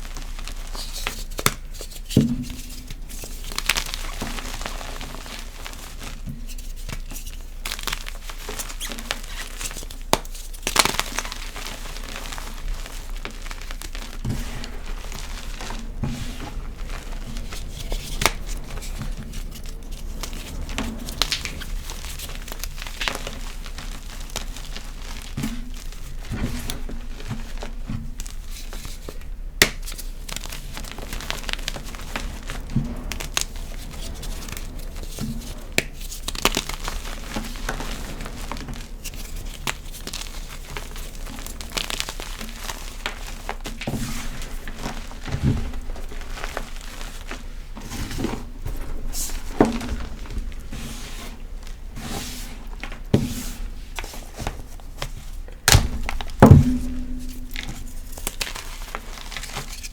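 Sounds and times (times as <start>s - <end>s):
hands crushing crispy chalk: 0.0s - 59.9s.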